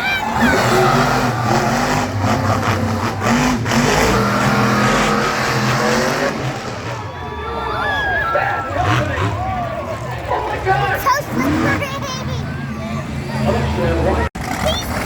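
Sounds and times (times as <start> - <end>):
monster truck engine revving: 0.0 - 15.0.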